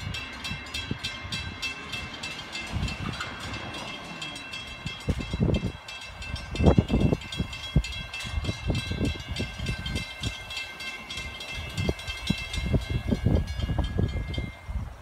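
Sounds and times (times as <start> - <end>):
high-pitched ringing tones: 0.0 - 15.0
low rumble of distant train: 0.0 - 15.0.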